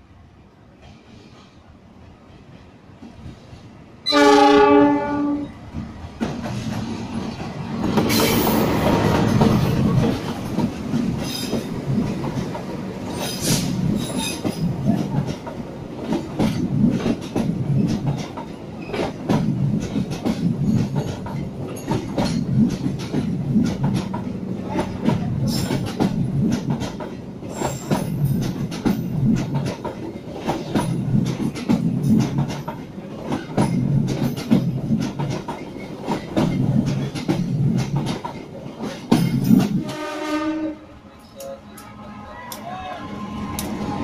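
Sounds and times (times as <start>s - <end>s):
diesel locomotive horn: 4.0s - 5.6s, 39.8s - 44.0s
wheels clattering over rail joints: 6.2s - 39.8s.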